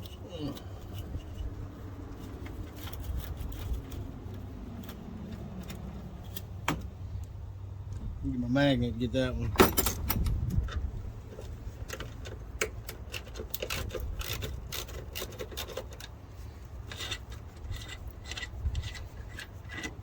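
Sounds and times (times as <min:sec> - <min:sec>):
wrench clicking and scraping: 0:00.0 - 0:06.6, 0:09.7 - 0:20.0
steady low rumble: 0:00.0 - 0:13.3.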